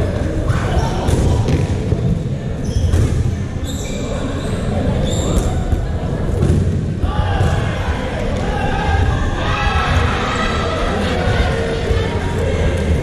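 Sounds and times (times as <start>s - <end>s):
players' voices: 0.0s - 13.0s
balls thudding on hall floor: 0.4s - 3.4s.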